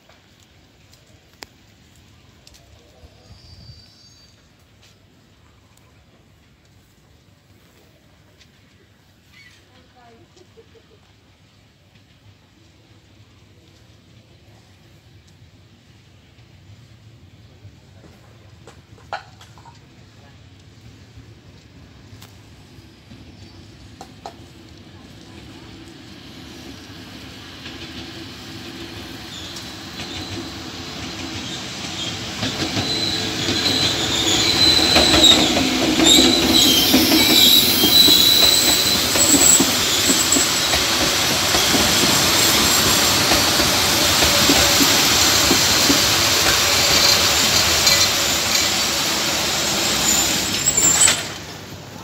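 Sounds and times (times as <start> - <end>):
train wheels rumbling on rail: 0.0 - 52.0
wheel and brake squeal: 3.2 - 4.6, 29.3 - 30.5, 31.4 - 43.4, 44.0 - 51.6.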